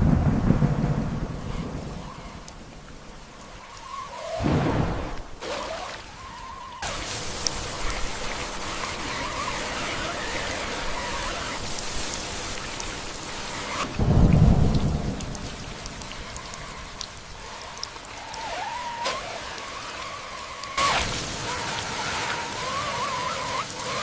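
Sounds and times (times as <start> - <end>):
deep thunder rumble: 0.0 - 3.3, 4.4 - 5.4, 13.9 - 17.6
heavy rain hissing: 0.0 - 24.0.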